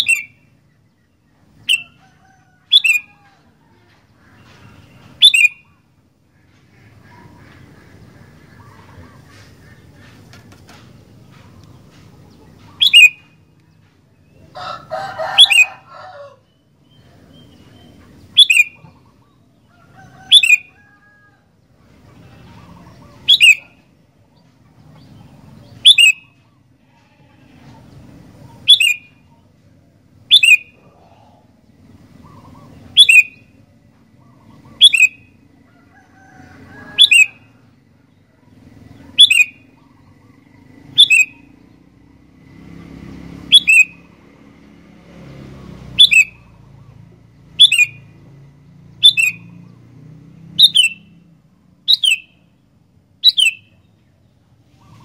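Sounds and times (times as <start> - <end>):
bird sharp call: 0.0 - 0.4, 1.6 - 3.2, 4.4 - 5.9, 12.6 - 13.4, 18.4 - 19.3, 20.2 - 20.7, 22.4 - 23.8, 25.8 - 26.4, 28.5 - 29.2, 30.3 - 31.4, 32.2 - 33.5, 34.2 - 35.3, 37.0 - 37.5, 39.1 - 40.1, 40.9 - 41.5, 43.5 - 44.1, 46.0 - 46.6, 47.6 - 48.1, 49.0 - 49.6, 50.6 - 51.2, 51.9 - 52.4, 53.2 - 53.8.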